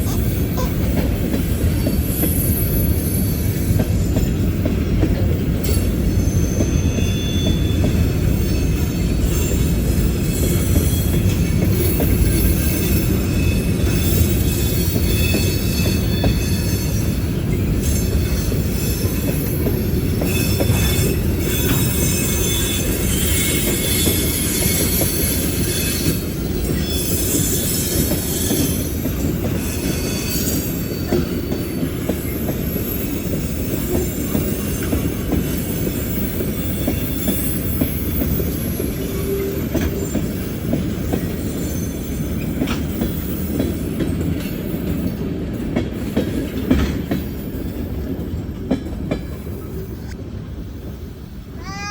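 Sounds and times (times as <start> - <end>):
train wheels rumbling: 0.0 - 51.9
metallic wheel squeal: 5.7 - 9.8, 11.8 - 17.2.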